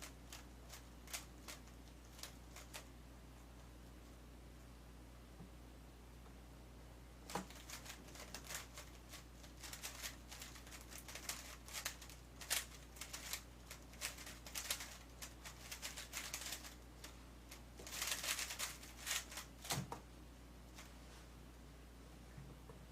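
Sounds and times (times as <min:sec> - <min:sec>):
speed cube clicking: 0:09.6 - 0:16.7, 0:17.9 - 0:19.4.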